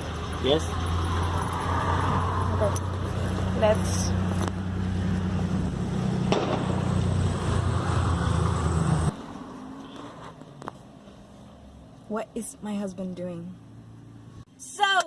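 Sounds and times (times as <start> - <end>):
car engine idling: 0.0 - 1.6.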